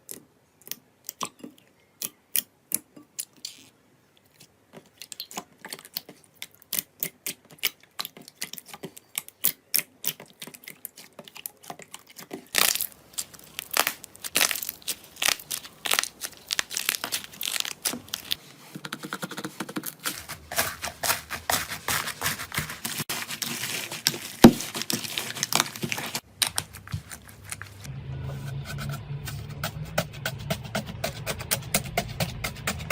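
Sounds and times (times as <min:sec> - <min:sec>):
slime clicking and crackling: 0:05.0 - 0:27.9.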